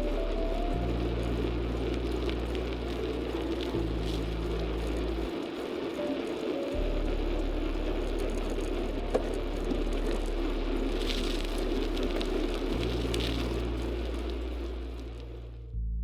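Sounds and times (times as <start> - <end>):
rushing vehicle noise: 0.0 - 15.6
music with sustained low notes: 0.0 - 16.0.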